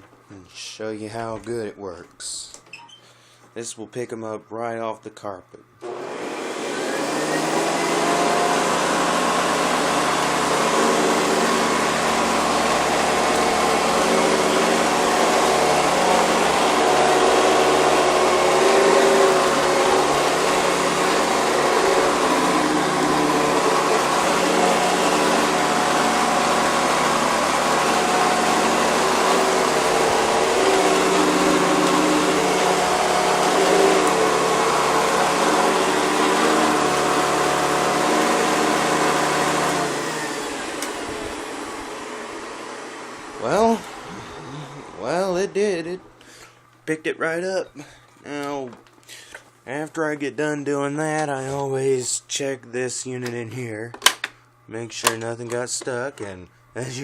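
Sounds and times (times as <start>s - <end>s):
vacuum cleaner running: 5.8s - 46.6s.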